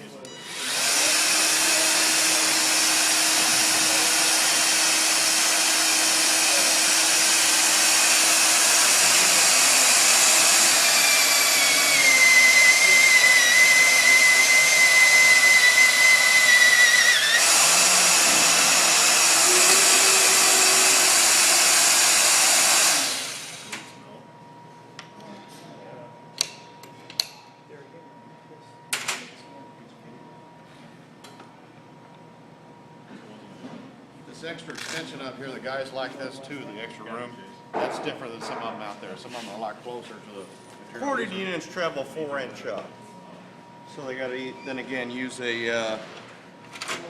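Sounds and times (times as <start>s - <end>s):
magnetic drill motor running: 0.4s - 24.0s.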